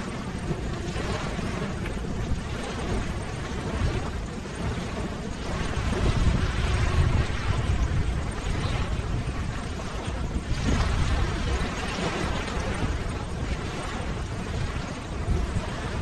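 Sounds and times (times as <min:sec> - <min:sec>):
ocean waves washing: 0:00.0 - 0:16.0.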